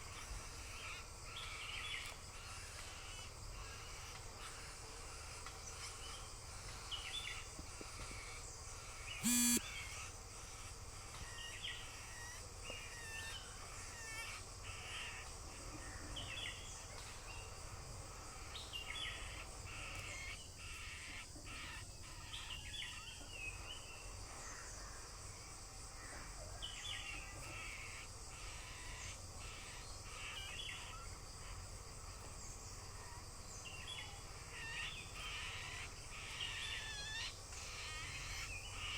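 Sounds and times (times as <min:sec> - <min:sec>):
birds calling: 0:00.0 - 0:15.2.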